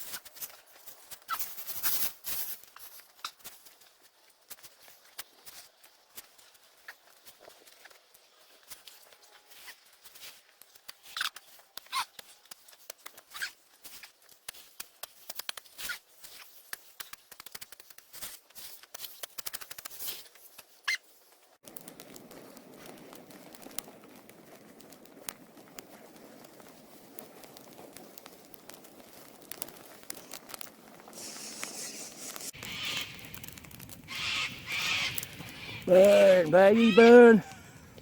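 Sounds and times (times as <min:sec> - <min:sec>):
sticks and leaves crunching: 0:19.8 - 0:37.4.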